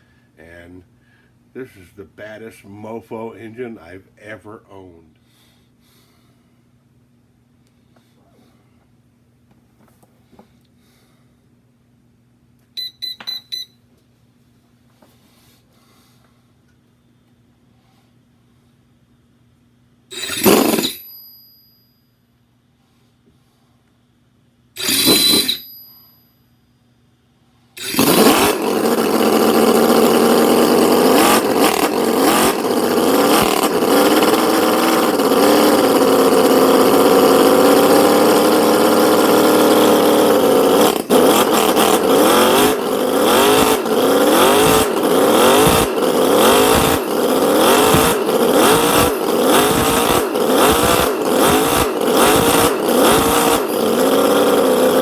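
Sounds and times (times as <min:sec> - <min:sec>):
model engine revving: 0:20.1 - 0:21.1, 0:24.8 - 0:25.7, 0:27.8 - 0:55.0.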